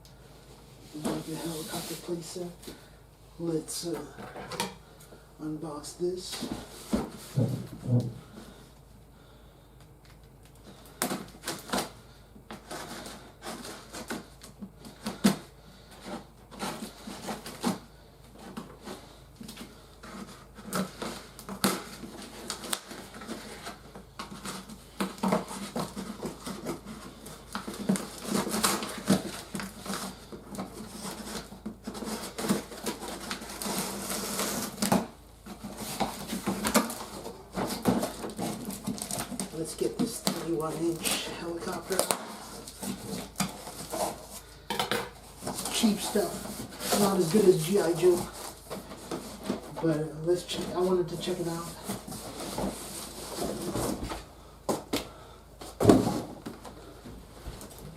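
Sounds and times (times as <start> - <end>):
packaging rustling: 10.1 - 57.9
packaging clicks and clatter: 18.4 - 49.7.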